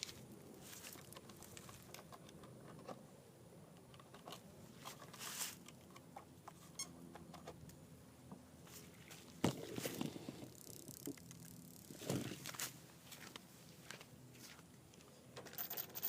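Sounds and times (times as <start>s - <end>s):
small clicks: 10.4s - 11.9s.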